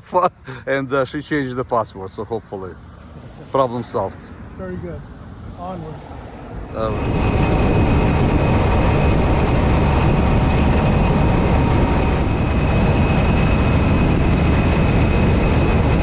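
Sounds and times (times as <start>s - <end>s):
wind rush on microphone: 4.4s - 16.0s.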